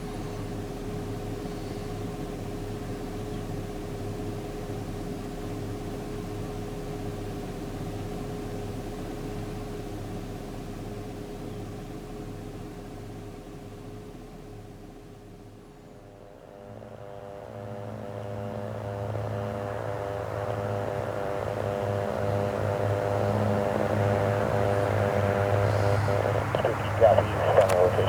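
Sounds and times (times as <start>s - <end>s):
aircraft engine drone: 16.1s - 28.0s
low hum: 16.2s - 28.0s.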